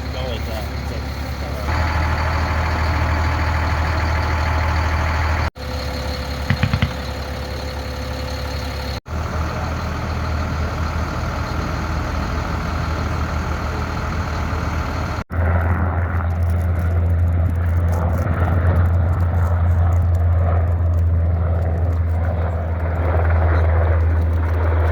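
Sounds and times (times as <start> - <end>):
vehicle engine droning: 0.0 - 24.9
quick sharp sounds: 6.4 - 7.3.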